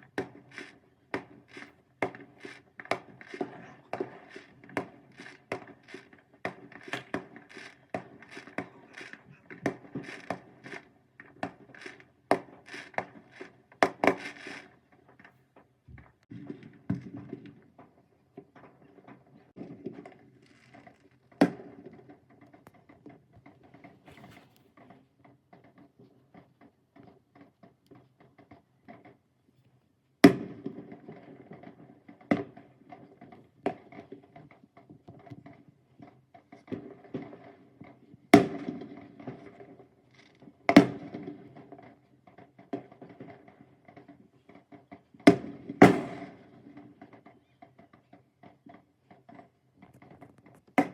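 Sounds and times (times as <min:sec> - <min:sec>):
fireworks bangs: 0:00.0 - 0:14.7, 0:45.3 - 0:46.6
small crackling pops: 0:00.0 - 0:17.9, 0:18.8 - 0:29.9.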